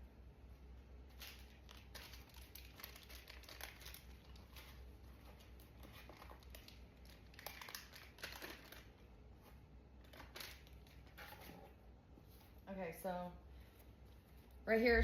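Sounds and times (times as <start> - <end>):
low room hum: 0.0 - 15.0
packaging crinkling and rustling: 1.0 - 11.6.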